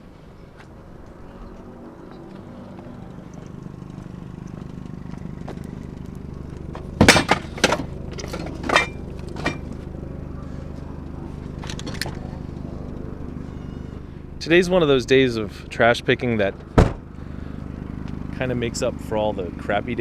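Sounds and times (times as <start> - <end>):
vehicle engine running: 0.0 - 20.0
clanks of loose hard items: 7.0 - 9.8.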